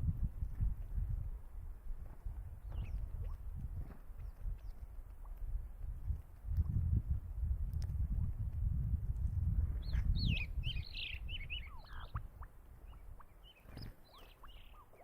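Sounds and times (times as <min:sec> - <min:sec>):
bird chirping: 0:02.6 - 0:03.4, 0:09.8 - 0:15.0.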